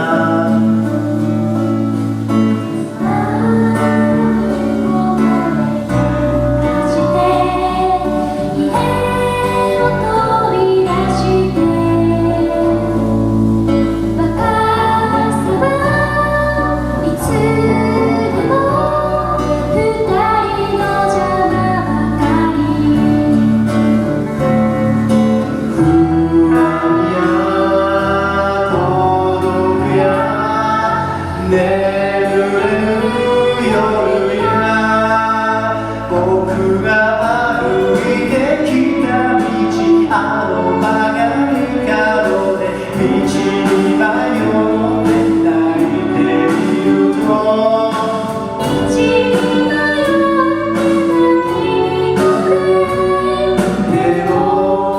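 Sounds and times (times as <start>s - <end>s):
guitar: 0.0s - 54.9s
person singing: 0.0s - 54.9s
sustained bass notes: 0.0s - 54.9s.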